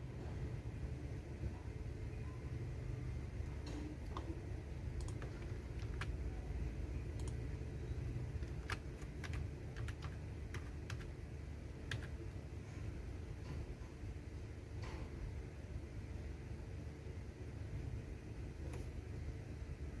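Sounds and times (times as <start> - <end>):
low background rumble: 2.8 - 13.5
computer keyboard typing: 3.8 - 6.5, 7.1 - 11.2, 11.8 - 12.3.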